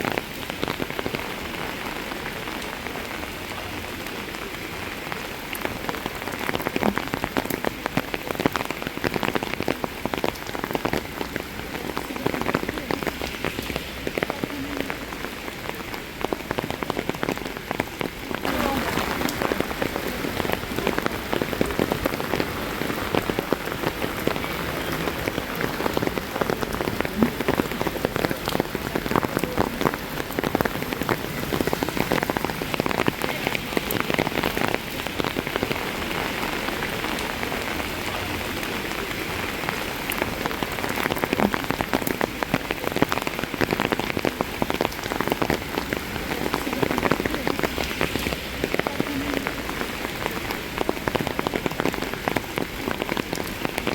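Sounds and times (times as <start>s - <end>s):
raindrops ticking close by: 0.0s - 53.9s
steady rain: 0.0s - 53.9s.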